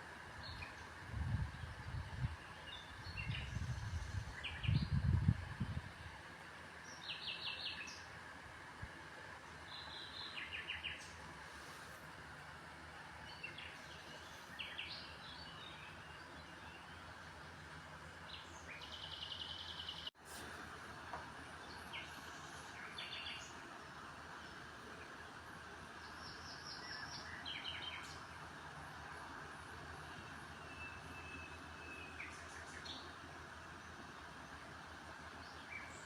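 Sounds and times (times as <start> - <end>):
steady background noise: 0.0 - 36.0
small birds chirping: 6.8 - 8.1, 13.2 - 20.2, 21.5 - 28.6.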